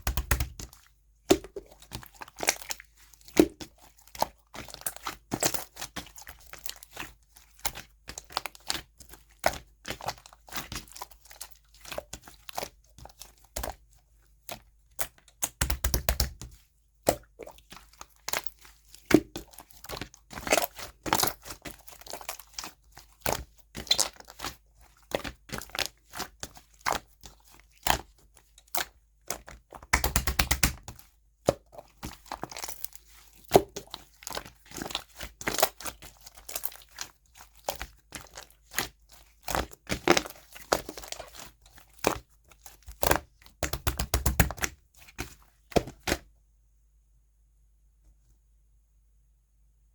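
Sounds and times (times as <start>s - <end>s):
slime sticky clicks and pops: 29.9s - 30.9s.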